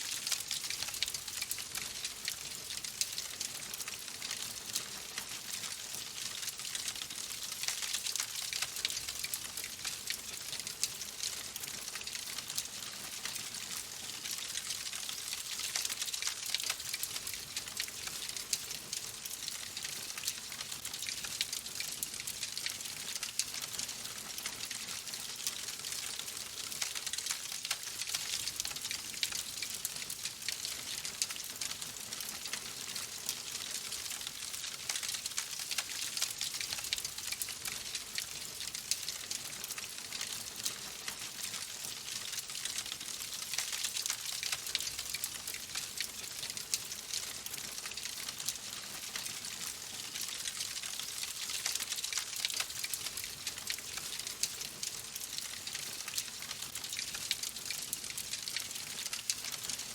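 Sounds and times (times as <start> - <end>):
wood fire crackling: 26.2 - 28.1.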